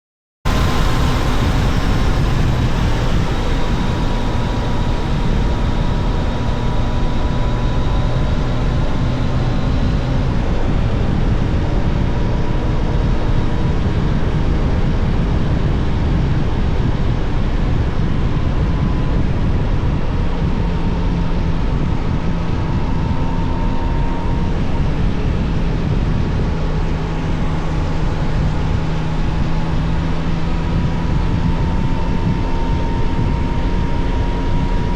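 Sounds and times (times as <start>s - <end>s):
motorcycle engine running: 0.5s - 34.9s
wind noise: 0.5s - 34.9s.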